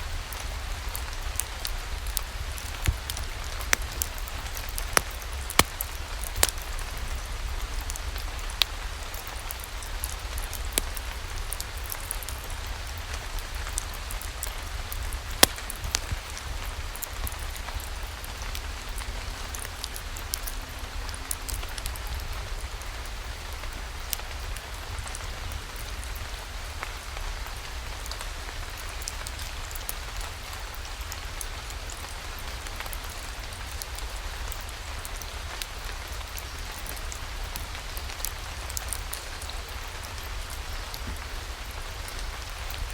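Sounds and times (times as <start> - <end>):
sharp ticks of raindrops: 0.0 - 42.9
steady rainfall: 0.0 - 42.9.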